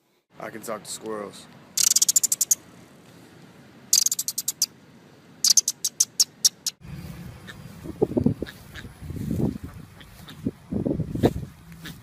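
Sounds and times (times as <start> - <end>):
squirrel chattering: 1.8 - 2.6, 3.9 - 4.7, 5.4 - 6.8
low rumble: 6.8 - 11.7.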